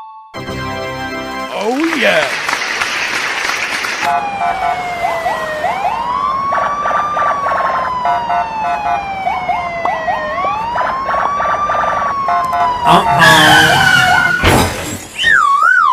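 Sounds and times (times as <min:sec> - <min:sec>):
police car siren wailing: 0:04.0 - 0:15.9.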